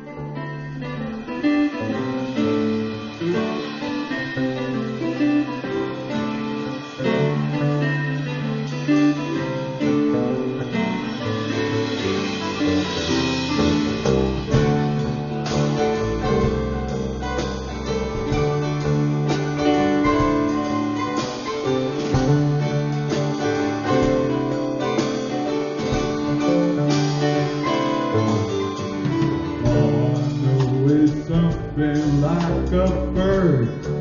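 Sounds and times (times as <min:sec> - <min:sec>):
piano or keyboard: 0:00.0 - 0:34.0
vocals: 0:29.6 - 0:34.0.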